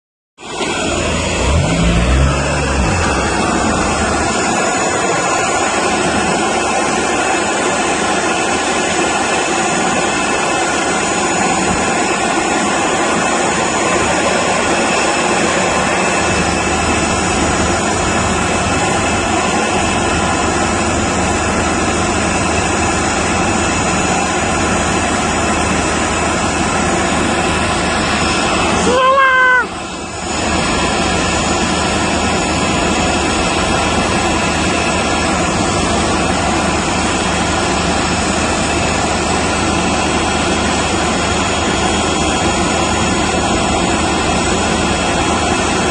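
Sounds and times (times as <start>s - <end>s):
jet engines running: 0.4s - 29.0s, 29.6s - 45.9s
high whining tones: 0.5s - 6.3s
low rumble: 0.6s - 6.2s.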